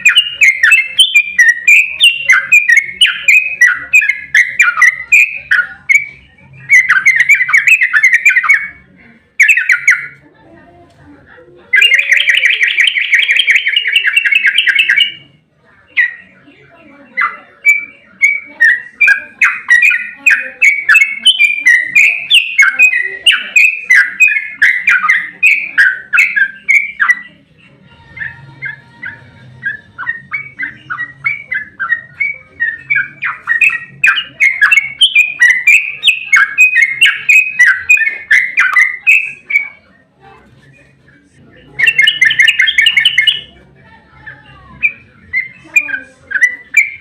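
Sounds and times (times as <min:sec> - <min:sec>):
bulbul singing chattering notes: 0:00.0 - 0:08.8, 0:09.4 - 0:10.2, 0:11.7 - 0:15.4, 0:17.1 - 0:27.5, 0:28.1 - 0:39.8, 0:41.6 - 0:43.6.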